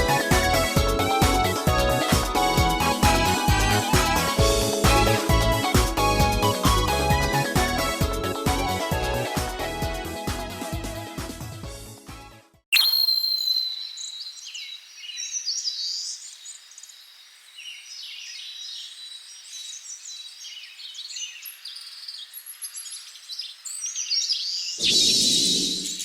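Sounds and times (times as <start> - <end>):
high ringing tone: 12.8 - 14.0
birds singing and chirping: 12.8 - 26.0.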